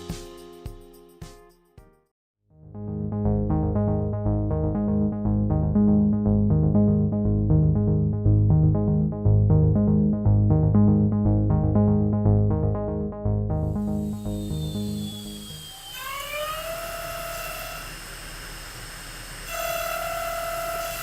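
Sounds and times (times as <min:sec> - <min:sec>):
steady bass line: 0:02.6 - 0:15.6
synthesizer repeated notes: 0:02.6 - 0:15.9.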